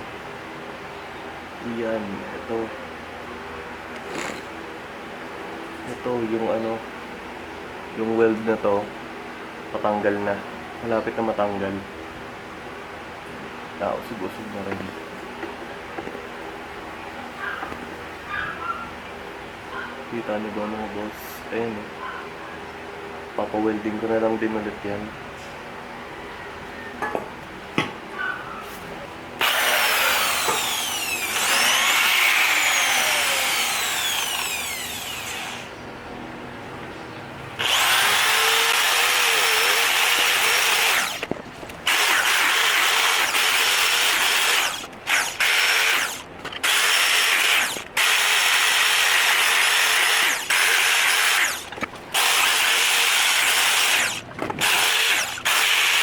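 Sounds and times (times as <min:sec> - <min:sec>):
power tool removing rust: 0:03.9 - 0:04.6, 0:29.4 - 0:35.7, 0:37.6 - 0:56.0.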